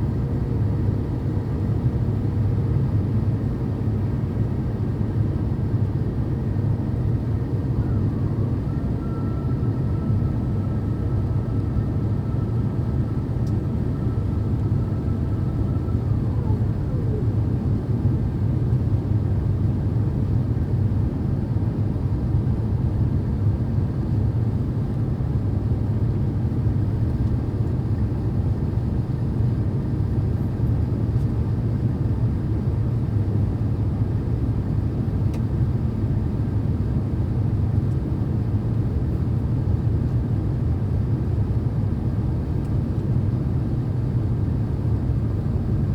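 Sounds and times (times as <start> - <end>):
airplane cabin rumble: 5.8 - 22.2, 37.2 - 45.9
faint high whine: 7.7 - 17.2.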